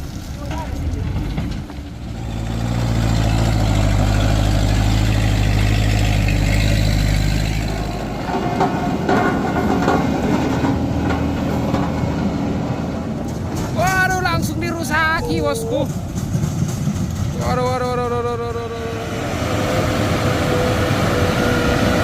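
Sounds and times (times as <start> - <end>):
heavy truck engine running: 0.0 - 22.0.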